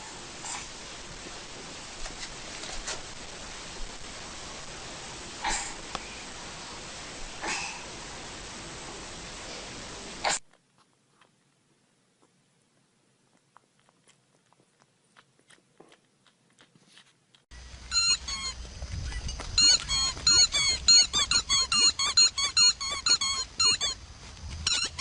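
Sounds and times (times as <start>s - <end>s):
high-pitched squeaks: 17.8s - 25.0s.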